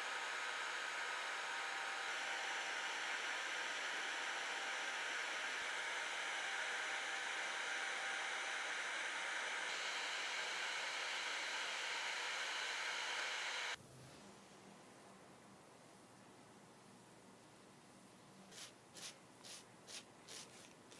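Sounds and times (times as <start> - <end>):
hot-air blower hissing: 0.0 - 13.8.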